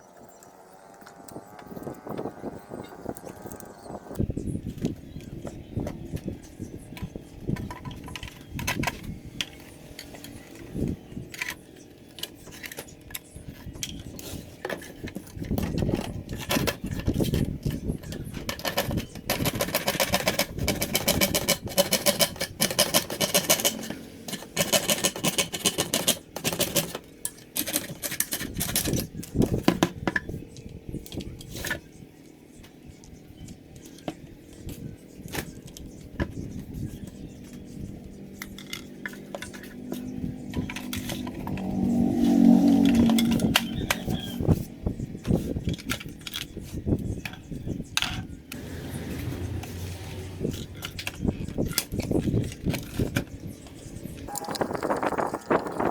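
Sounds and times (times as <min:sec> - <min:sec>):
small hard parts clicking: 0:06.9 - 0:30.2.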